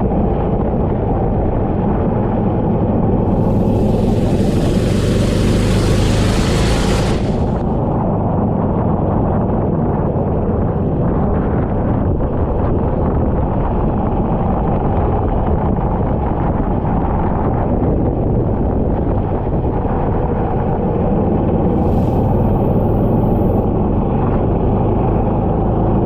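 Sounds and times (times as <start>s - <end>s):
wind buffeting microphone: 0.0s - 26.0s
kart engine running: 3.2s - 8.1s.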